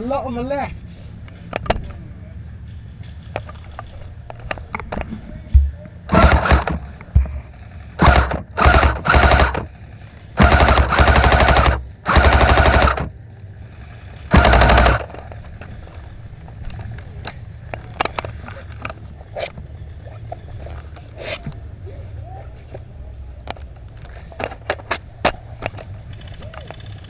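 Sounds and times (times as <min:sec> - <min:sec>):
airsoft rifle firing bursts: 0:06.1 - 0:09.8, 0:10.4 - 0:13.2, 0:14.3 - 0:15.3.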